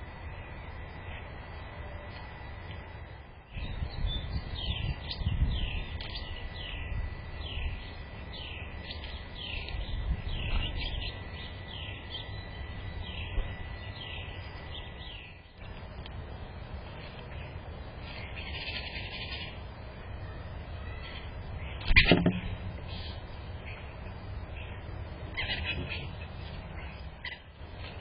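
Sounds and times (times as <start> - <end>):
faint steady whine: 0.0 - 28.0.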